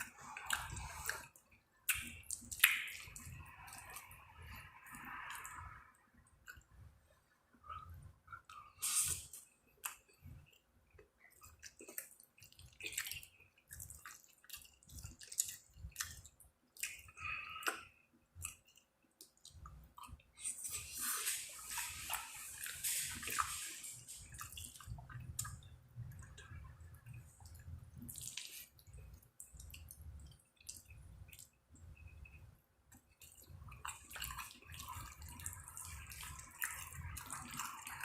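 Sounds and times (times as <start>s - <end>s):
person chewing food: 0.0s - 38.0s
rustling noise: 20.5s - 24.6s.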